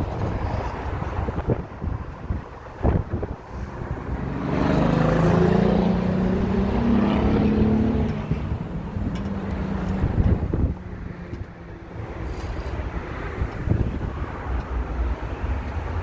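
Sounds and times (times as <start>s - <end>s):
wind on microphone: 0.0s - 16.0s
vehicle passing: 3.5s - 14.6s.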